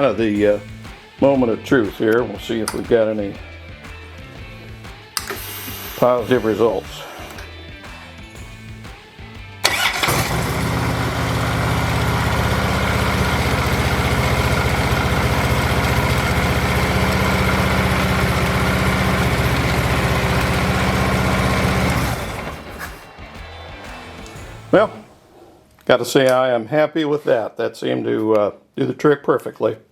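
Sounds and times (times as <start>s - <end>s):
motorcycle engine starting and idling: 9.6s - 23.1s.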